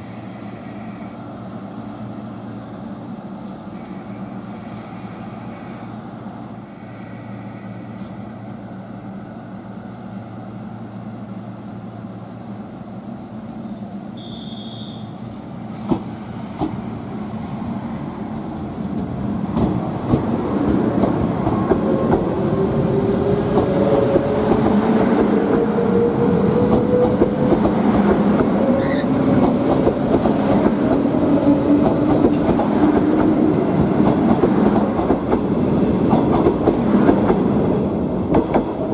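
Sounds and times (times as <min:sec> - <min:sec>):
train wheels clattering on rails: 0:12.6 - 0:17.2, 0:18.4 - 0:38.9.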